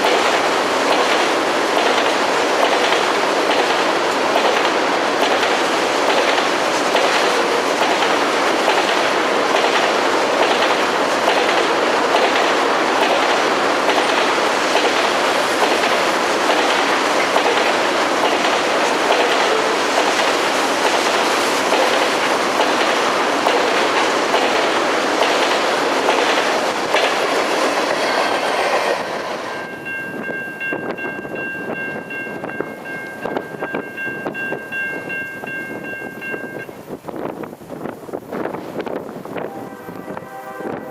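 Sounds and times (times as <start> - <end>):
freight train wheels clicking: 0.0 - 40.9
steady high tones: 27.5 - 36.8.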